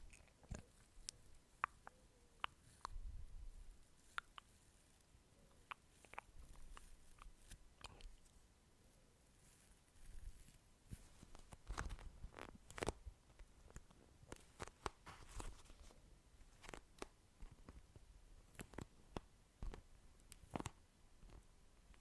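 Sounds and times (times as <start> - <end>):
wet mouth clicks and smacks: 1.6 - 3.0, 5.6 - 8.1.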